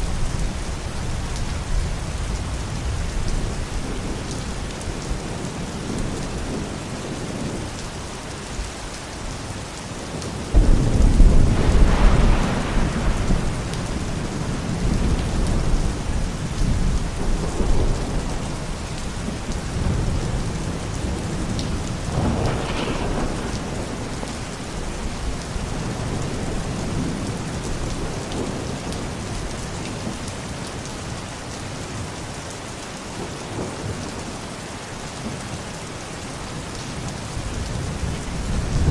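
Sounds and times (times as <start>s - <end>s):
steady rain hiss: 0.0s - 38.9s
thunderclap and rumbling: 10.0s - 30.3s, 36.6s - 38.9s.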